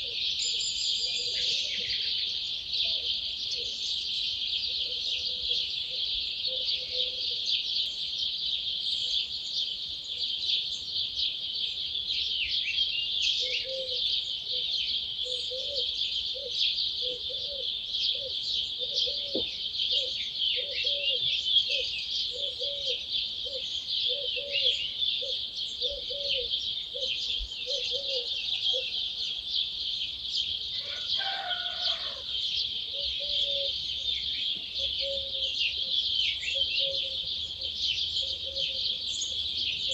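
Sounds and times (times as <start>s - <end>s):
low repeated bird call: 0.0s - 8.0s, 12.4s - 29.2s, 30.8s - 39.9s
songbirds singing and chirping: 0.0s - 39.9s
low falling bird call: 18.2s - 26.5s.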